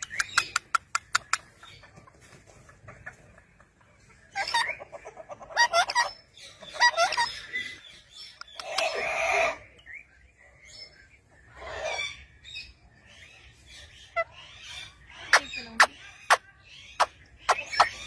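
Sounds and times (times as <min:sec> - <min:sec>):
parrot squawking: 0:04.4 - 0:07.6.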